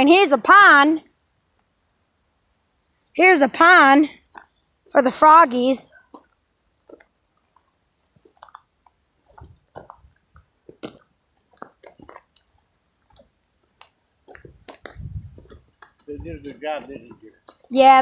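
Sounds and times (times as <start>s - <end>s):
small clicks and crunches: 6.1s - 16.1s.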